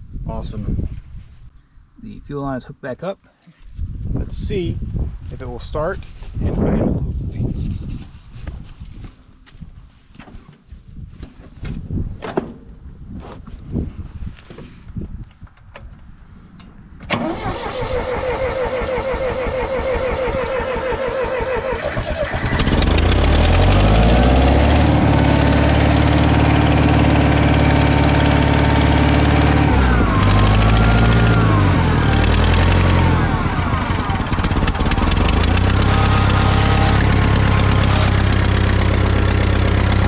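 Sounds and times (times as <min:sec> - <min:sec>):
starter motor cranking: 0:17.1 - 0:25.6, 0:27.6 - 0:40.0
tractor engine running: 0:17.2 - 0:40.0.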